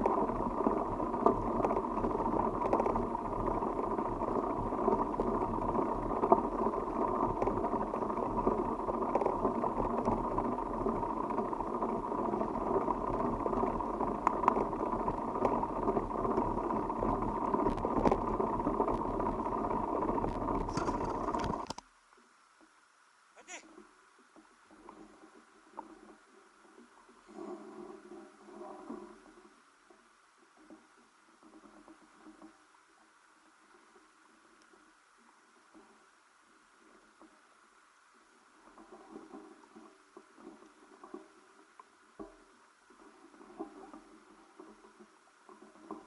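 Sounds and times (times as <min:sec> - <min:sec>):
bicycle tyres rumbling: 0:00.0 - 0:21.8
small clicks and rattles: 0:00.0 - 0:22.8, 0:23.7 - 0:46.0
wind: 0:00.0 - 0:46.0.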